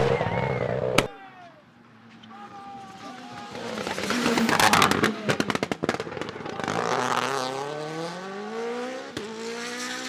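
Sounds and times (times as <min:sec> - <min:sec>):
exhaust pops and bangs: 0:00.8 - 0:01.1, 0:03.4 - 0:07.3
rally car engine revving: 0:03.2 - 0:10.0.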